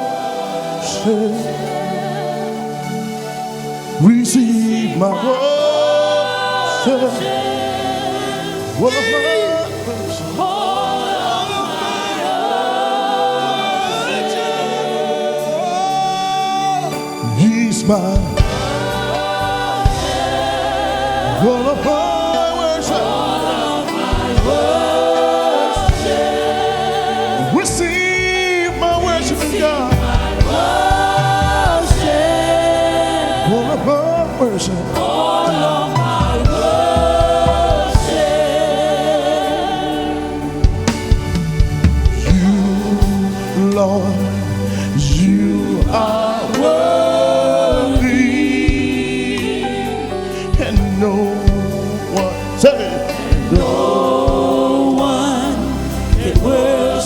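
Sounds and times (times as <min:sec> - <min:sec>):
choir singing long held notes: 0:00.0 - 0:57.0
live band with bass and drums: 0:18.0 - 0:20.6, 0:29.2 - 0:32.7, 0:36.0 - 0:38.6, 0:40.4 - 0:47.0, 0:47.7 - 0:56.8.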